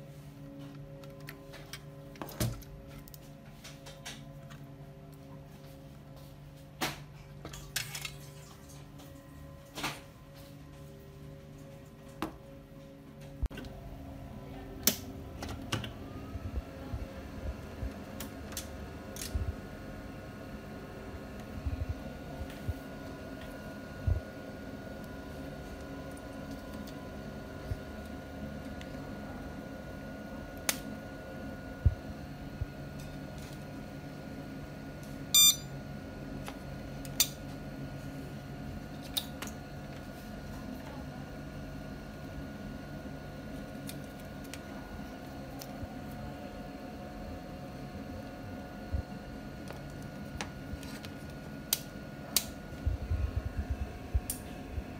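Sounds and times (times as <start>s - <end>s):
steady low hum: 0.0s - 54.9s
short electronic beep: 35.3s - 35.7s.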